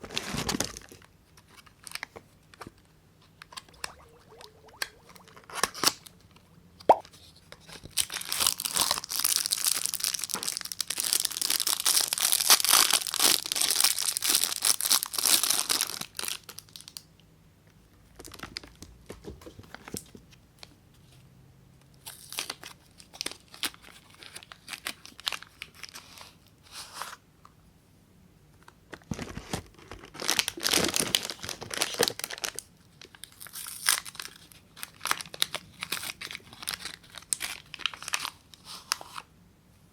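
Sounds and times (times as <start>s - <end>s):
packaging tearing and crinkling: 7.9s - 17.0s, 29.1s - 38.5s.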